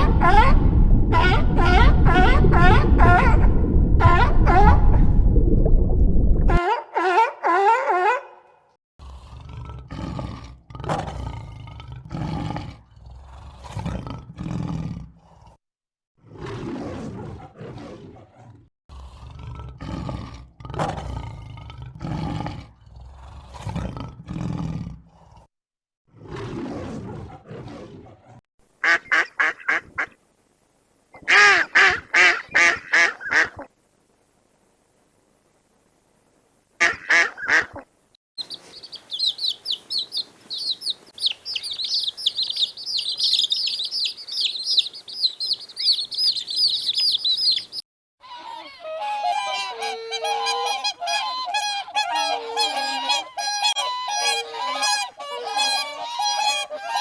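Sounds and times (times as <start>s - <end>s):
deep animal calls: 38.4s - 47.8s
rapid high-pitched animal calls: 38.4s - 47.8s.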